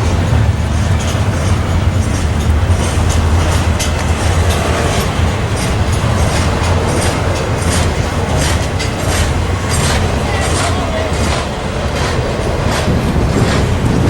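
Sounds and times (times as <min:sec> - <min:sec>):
low train rumble: 0:00.0 - 0:14.0
train wheels clacking over rail joints: 0:00.0 - 0:14.0.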